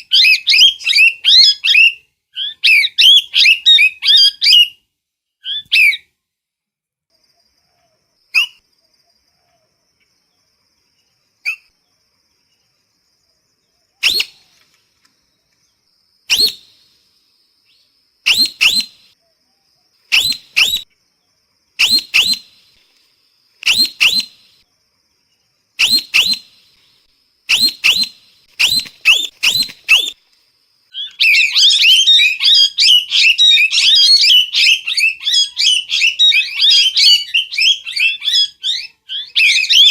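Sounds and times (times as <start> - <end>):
parrot calling: 27.5 - 30.2, 31.0 - 39.9.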